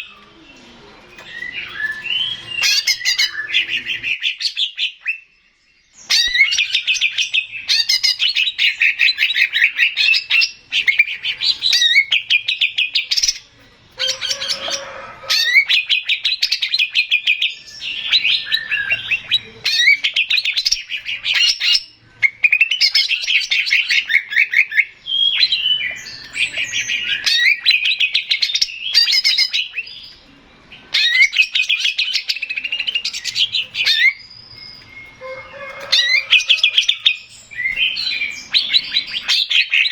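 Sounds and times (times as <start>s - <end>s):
bird singing trilled phrases: 0.0s - 39.9s.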